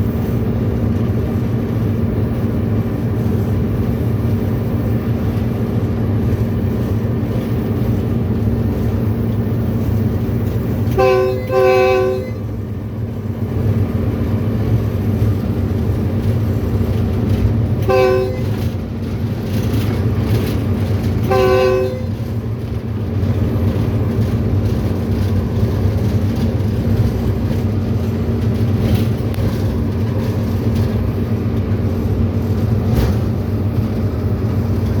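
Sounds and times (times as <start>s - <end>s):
diesel locomotive engine running: 0.0s - 35.0s
locomotive air horn blasts: 10.8s - 12.5s, 17.8s - 18.7s, 21.2s - 22.4s.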